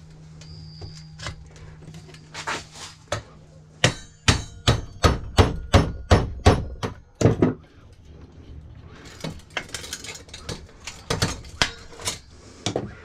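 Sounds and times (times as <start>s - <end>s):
hammer striking metal: 3.8s - 7.5s.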